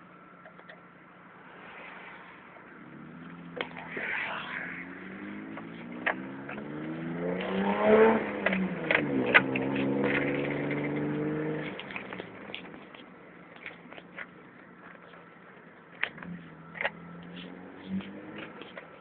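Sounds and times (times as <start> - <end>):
sharp exhaust cracks: 0.5 - 19.0
car engine revving: 0.9 - 13.0, 16.0 - 19.0.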